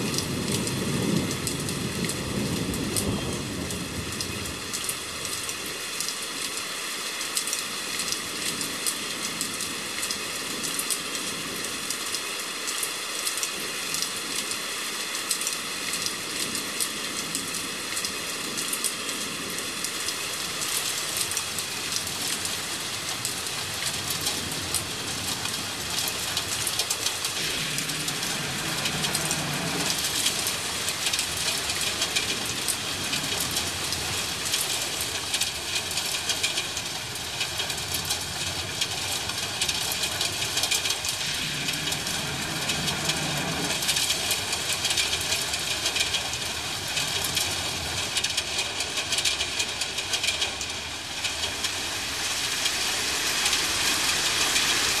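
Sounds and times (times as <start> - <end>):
distant thunder rumbles: 0.0 - 5.4, 24.3 - 34.6, 39.6 - 49.4
heavy rain pattering: 0.0 - 55.0.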